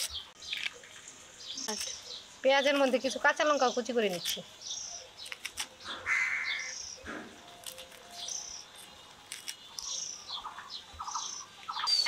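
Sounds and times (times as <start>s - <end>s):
bird calling: 3.6s - 8.8s, 9.4s - 12.0s.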